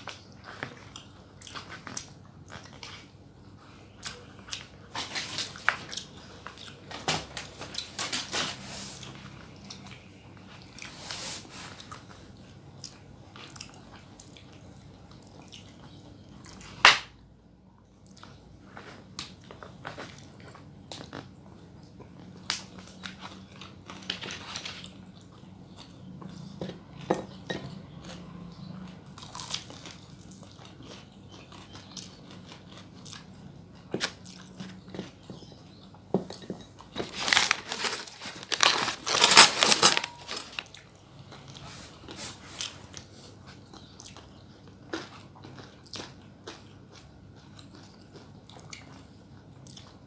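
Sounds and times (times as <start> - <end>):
person chewing and biting: 29.2 - 30.0.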